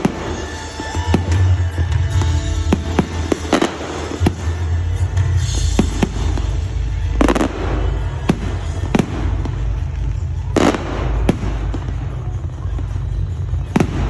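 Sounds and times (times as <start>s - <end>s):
fireworks bangs: 0.0s - 14.0s
heavy firework booms: 5.6s - 14.0s.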